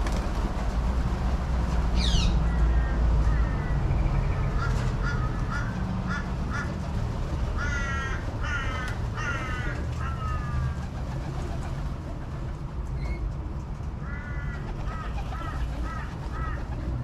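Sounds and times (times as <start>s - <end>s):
crow cawing: 2.7s - 3.8s, 4.6s - 6.8s, 7.6s - 10.8s, 14.0s - 16.7s.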